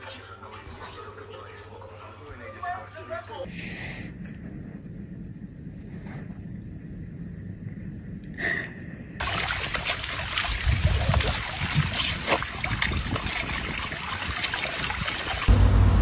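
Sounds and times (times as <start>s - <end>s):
running water splashing: 9.2s - 16.0s
low rumble: 15.5s - 16.0s.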